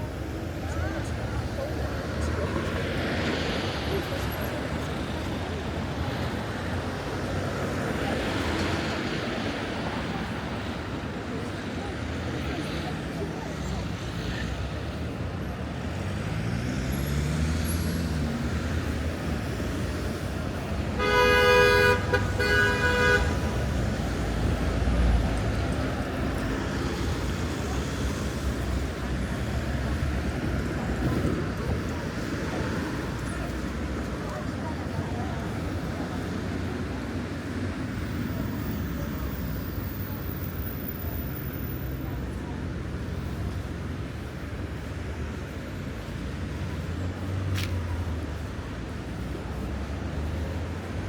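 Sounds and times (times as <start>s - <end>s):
road traffic noise: 0.0s - 51.0s
vehicle horn honking: 21.0s - 23.6s.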